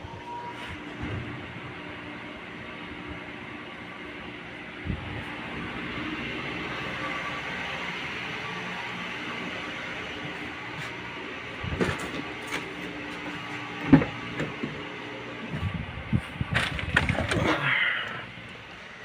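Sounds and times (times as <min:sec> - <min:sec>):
steady background noise: 0:00.0 - 0:19.0
objects knocking and clattering: 0:16.5 - 0:17.6
objects rattling: 0:16.5 - 0:17.7.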